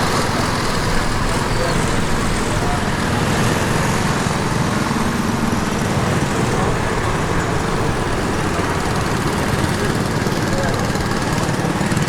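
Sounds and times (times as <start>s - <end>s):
small engines chugging: 0.0s - 12.0s.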